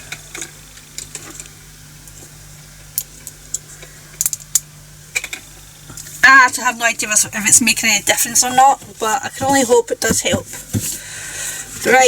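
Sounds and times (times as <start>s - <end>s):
faint steady hum: 0.0s - 12.0s
small hard objects clicking: 3.0s - 6.1s.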